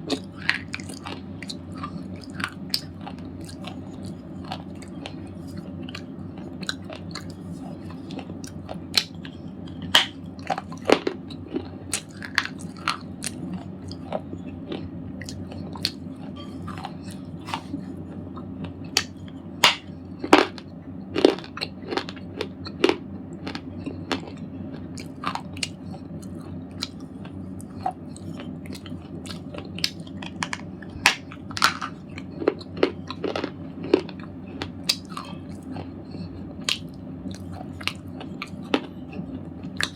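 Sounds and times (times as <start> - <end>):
steady low hum: 0.0 - 39.9
slate ball crunching and cracking: 9.8 - 13.4, 18.9 - 20.6, 29.3 - 35.3.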